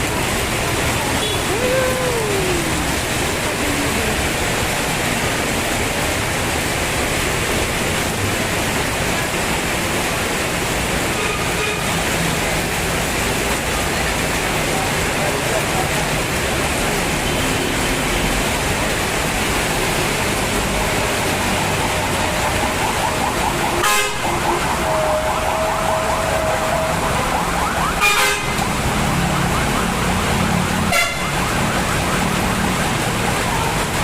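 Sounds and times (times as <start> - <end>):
heavy rain: 0.0 - 34.0
traffic on wet road: 0.0 - 34.0
car horn steady note: 23.8 - 24.3, 28.0 - 28.6, 30.9 - 31.4.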